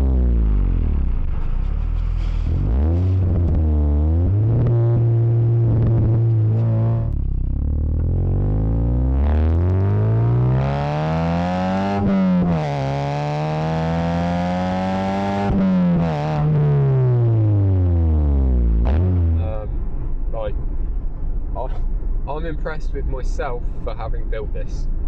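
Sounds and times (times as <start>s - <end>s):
car exhaust engine revving: 0.0s - 19.8s.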